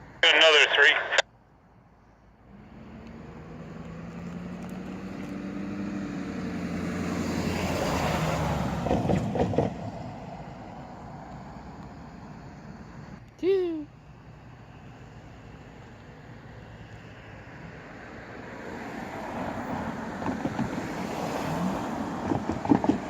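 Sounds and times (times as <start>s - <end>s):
diesel locomotive engine: 8.7s - 18.4s.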